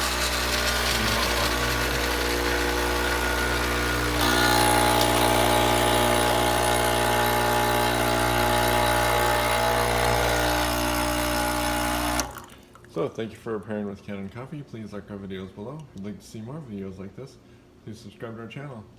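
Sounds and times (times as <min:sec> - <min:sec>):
espresso machine pump humming: 0:00.0 - 0:12.6.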